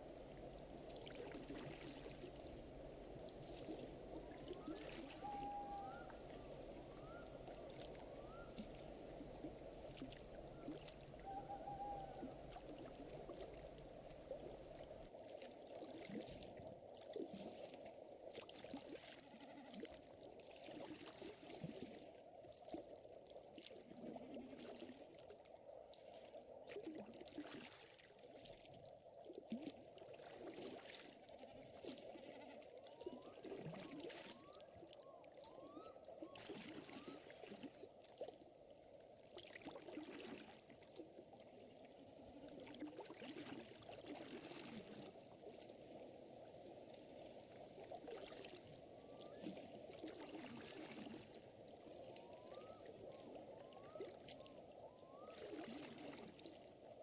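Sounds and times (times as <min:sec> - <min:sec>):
lake water lapping: 0:00.0 - 0:17.8, 0:29.5 - 0:57.0.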